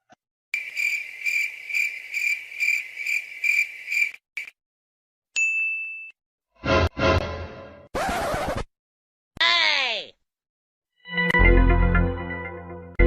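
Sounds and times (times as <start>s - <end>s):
cricket chirping: 0.6s - 4.5s
high ding: 5.4s - 6.2s.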